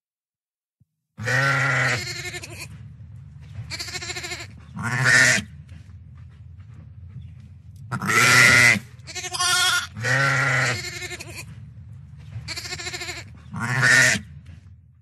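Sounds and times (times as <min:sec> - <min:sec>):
farm animals bleating: 0:01.2 - 0:02.8, 0:03.5 - 0:05.6, 0:07.9 - 0:11.6, 0:12.3 - 0:14.3
steady low hum: 0:01.2 - 0:15.0.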